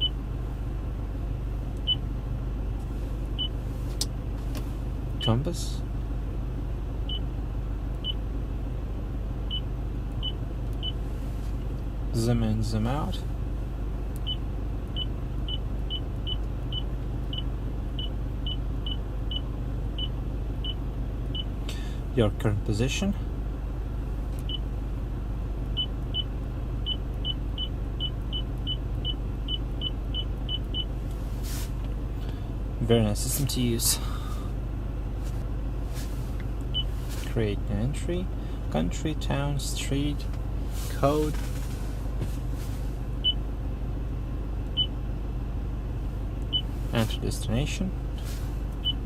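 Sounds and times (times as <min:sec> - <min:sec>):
low car cabin hum: 0:00.0 - 0:49.0
brief hiss: 0:31.3 - 0:31.8.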